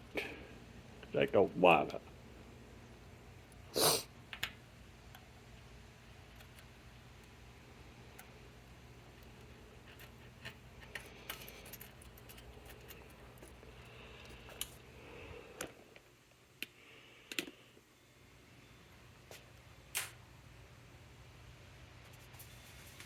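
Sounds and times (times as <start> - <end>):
faint low hum: 0.0 - 23.0
small metal parts clicking: 9.1 - 13.6.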